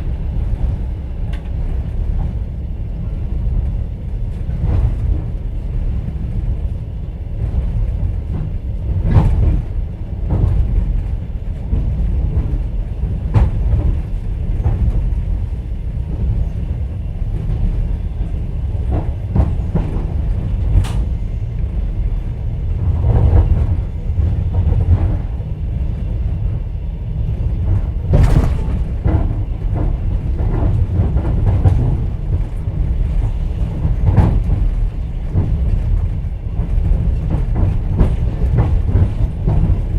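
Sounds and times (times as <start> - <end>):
train rumble: 0.0 - 39.9
wheels clacking over rail joints: 27.3 - 39.9.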